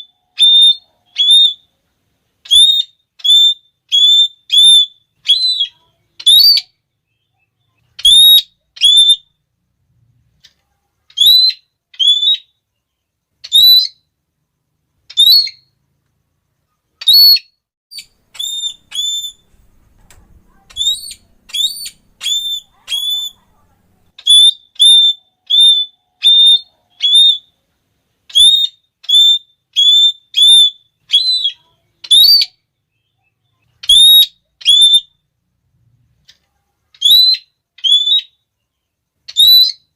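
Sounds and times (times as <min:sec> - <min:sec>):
parrot shrill repeated calls: 0:00.0 - 0:01.7, 0:02.4 - 0:09.4, 0:11.1 - 0:12.6, 0:13.4 - 0:14.1, 0:15.1 - 0:15.7, 0:17.0 - 0:19.8, 0:20.4 - 0:27.6, 0:28.3 - 0:35.2, 0:36.9 - 0:38.5, 0:39.3 - 0:39.9.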